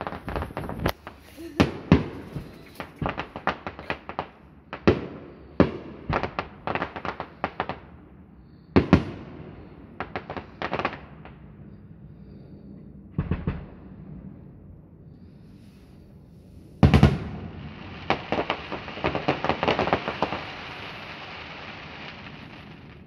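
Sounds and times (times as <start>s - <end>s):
fireworks crackling: 0.0s - 7.9s, 10.0s - 11.3s, 16.6s - 23.0s
fireworks bursting with bangs: 0.0s - 8.0s, 8.7s - 11.4s, 13.2s - 13.9s, 16.6s - 23.0s.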